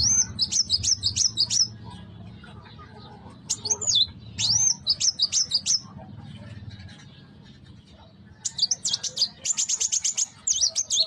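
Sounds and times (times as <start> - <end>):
bird whistling and chirping: 0.0 - 1.8, 3.5 - 5.9.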